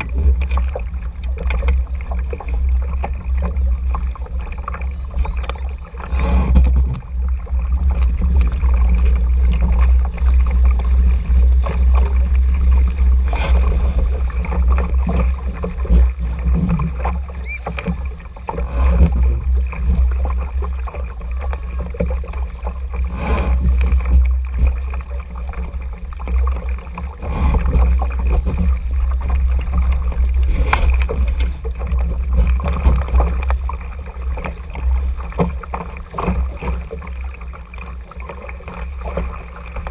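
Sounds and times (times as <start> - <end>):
water rushing along hull: 0.0 - 39.9
wind rumbling on microphone: 0.0 - 39.9.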